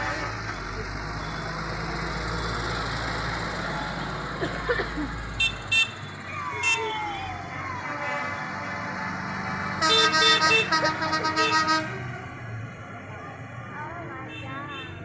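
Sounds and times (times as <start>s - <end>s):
tractor engine running: 0.0s - 14.0s
crowd noise: 10.4s - 15.0s.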